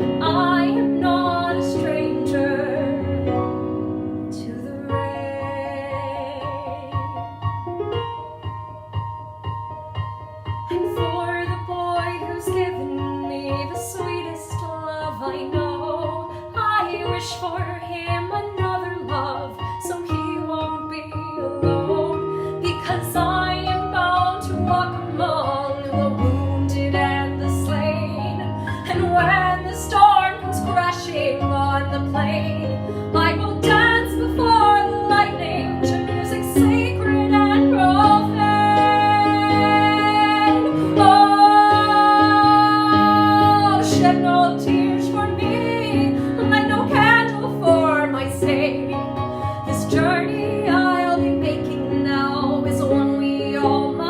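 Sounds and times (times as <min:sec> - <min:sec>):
woman singing a ballad: 0:00.0 - 0:07.6, 0:10.7 - 0:54.0
instrumental accompaniment: 0:00.0 - 0:54.0.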